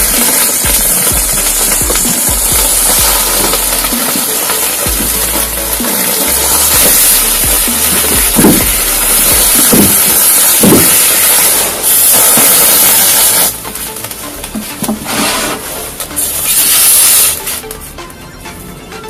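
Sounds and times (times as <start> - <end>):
firework hissing spray: 0.0 - 17.8
firework sputters: 0.0 - 17.9
dull thumps: 6.7 - 11.1.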